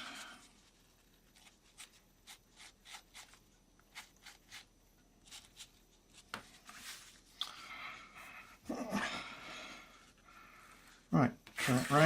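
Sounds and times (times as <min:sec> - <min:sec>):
tissue rubbing strokes: 0:00.0 - 0:07.3, 0:11.6 - 0:12.0.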